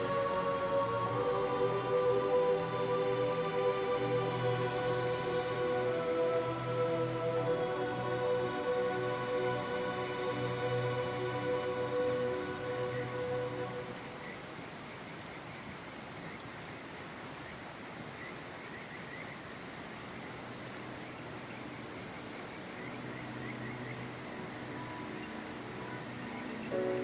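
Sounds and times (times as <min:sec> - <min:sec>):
river rushing: 0:00.0 - 0:14.9
insects chirping: 0:00.0 - 0:27.0.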